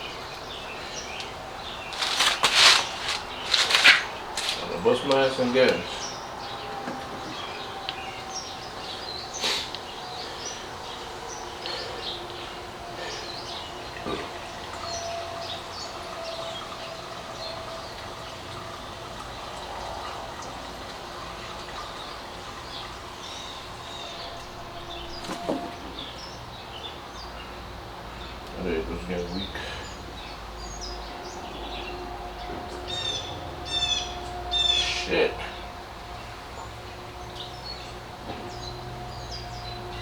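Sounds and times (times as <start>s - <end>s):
birds chirping: 0.0s - 40.0s
fuel splashing onto floor: 0.1s - 6.0s.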